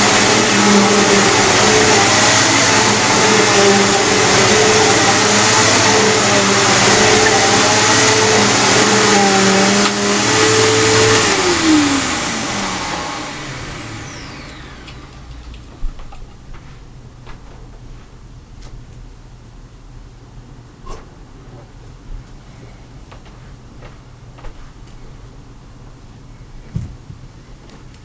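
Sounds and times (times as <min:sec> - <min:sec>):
vacuum cleaner motor whine: 0:00.0 - 0:15.8.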